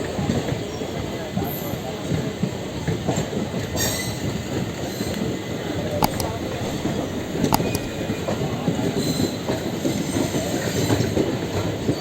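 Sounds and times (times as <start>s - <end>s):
sharp clicks: 6.0s - 8.5s.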